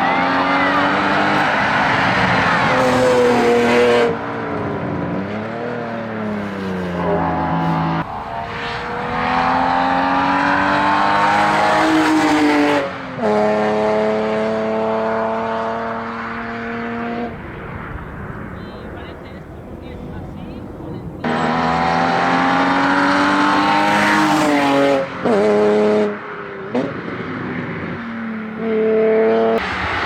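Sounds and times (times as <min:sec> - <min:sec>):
car engine at full throttle: 0:00.0 - 0:30.0.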